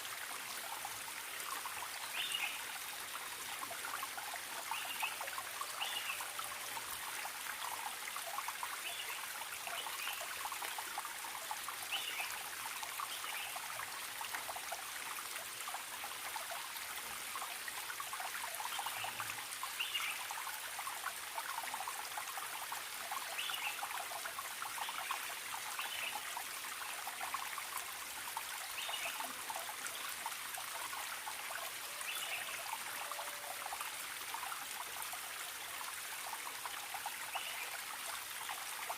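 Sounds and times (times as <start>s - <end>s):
stream trickling and splashing: 0.0s - 38.9s.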